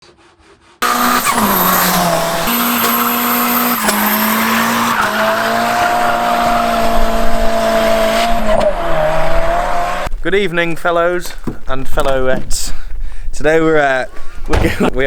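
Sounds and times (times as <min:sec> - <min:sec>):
car engine at high revs: 0:00.8 - 0:10.1
tyres squealing and skidding: 0:00.8 - 0:10.1.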